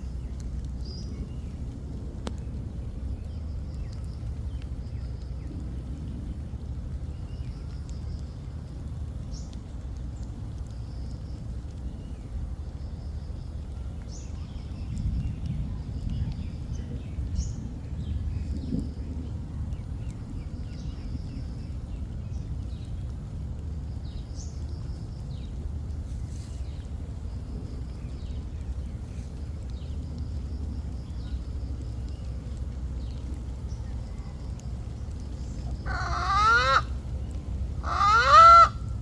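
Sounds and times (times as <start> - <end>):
low outdoor rumble: 0.0 - 39.0
small birds chirping: 23.9 - 38.8.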